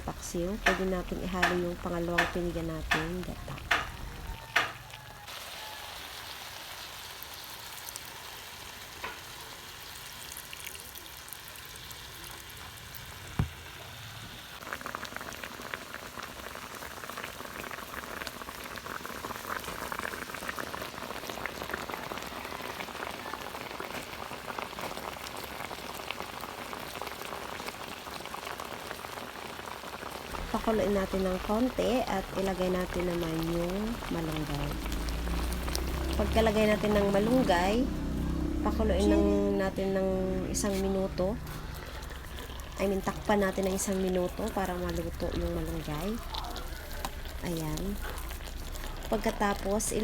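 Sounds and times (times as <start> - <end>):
fish bubbling and sizzling: 0.0 - 50.0
utensil knocking on pan: 0.5 - 4.8.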